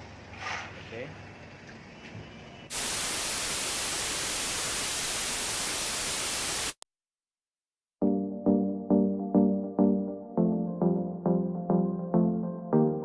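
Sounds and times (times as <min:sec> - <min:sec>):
white-noise static hiss: 0:02.7 - 0:06.8.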